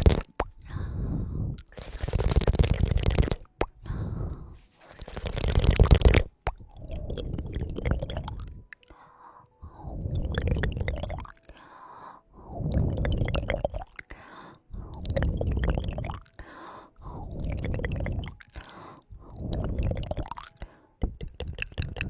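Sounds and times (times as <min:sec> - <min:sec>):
wet clicks and crackles: 0:04.8 - 0:09.0, 0:15.0 - 0:16.5, 0:17.4 - 0:22.0.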